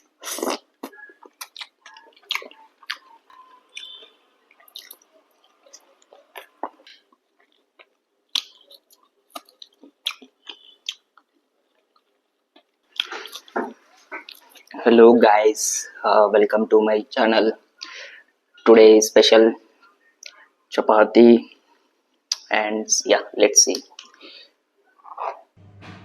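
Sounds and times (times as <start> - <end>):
person chewing with wet mouth sounds: 0.1 - 14.8.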